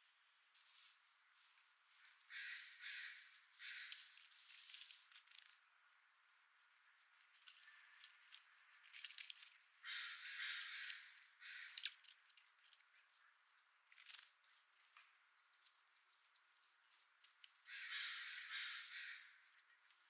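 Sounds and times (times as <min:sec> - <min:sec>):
raspy caw-like bird calls: 0:02.2 - 0:04.2, 0:09.8 - 0:12.1, 0:17.6 - 0:19.4
sharp clicks: 0:11.6 - 0:12.5.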